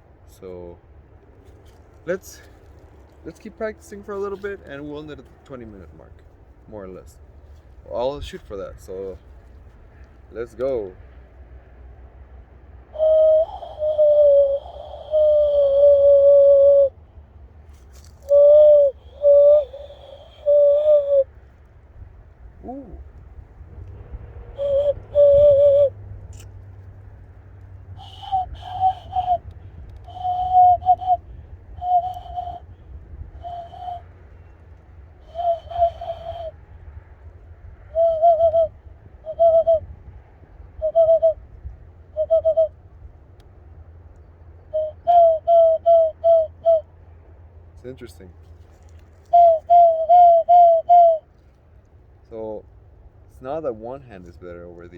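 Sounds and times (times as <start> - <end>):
cooing hand whistle: 12.9 - 17.0, 18.2 - 21.3, 22.6 - 23.1, 24.4 - 26.0, 28.0 - 34.6, 35.2 - 36.7, 37.9 - 39.9, 40.8 - 41.4, 42.1 - 42.7, 44.7 - 46.9, 49.2 - 51.3.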